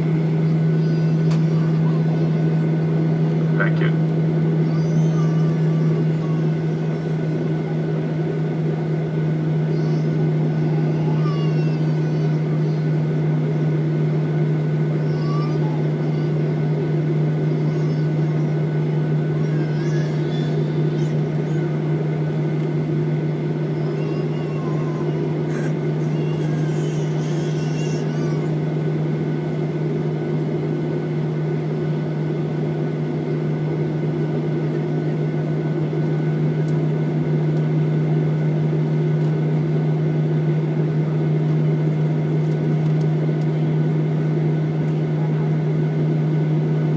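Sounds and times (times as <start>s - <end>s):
airliner cabin drone: 0.0s - 46.9s
high whining tones: 3.6s - 7.5s.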